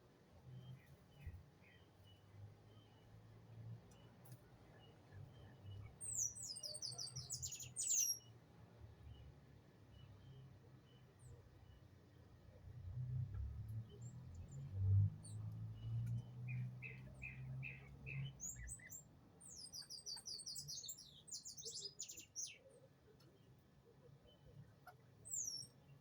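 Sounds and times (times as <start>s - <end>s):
small birds chirping: 0.4s - 8.4s, 13.8s - 26.0s.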